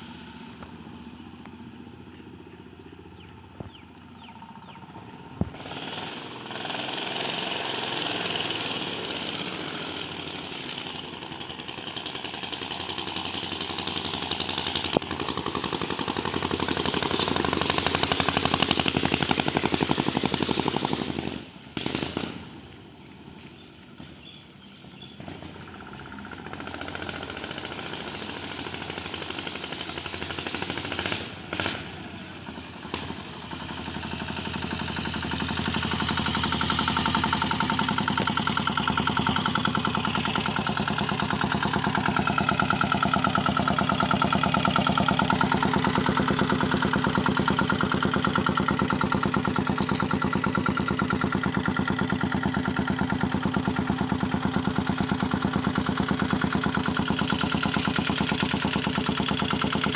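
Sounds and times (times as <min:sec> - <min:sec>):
small diesel engine running: 0:00.0 - 0:59.9.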